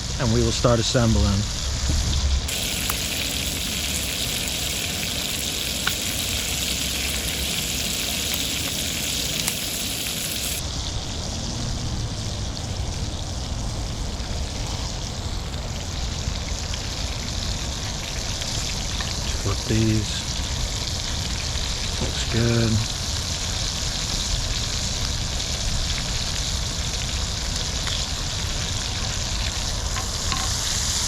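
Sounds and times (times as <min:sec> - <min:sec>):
frying sizzle: 0:00.0 - 0:31.0.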